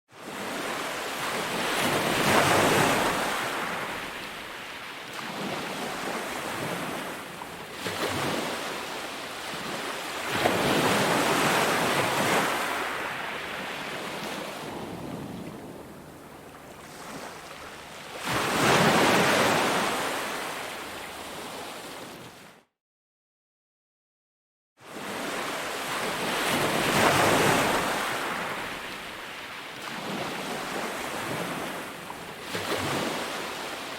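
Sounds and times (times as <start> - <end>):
sea waves breaking on beach: 0.2 - 22.5, 24.8 - 33.9.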